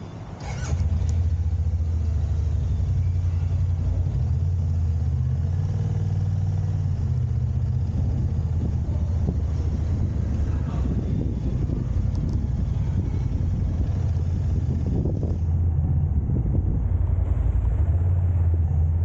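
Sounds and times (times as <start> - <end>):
vehicle engine rumbling: 0.0 - 19.0
engine starting click: 0.4 - 1.4.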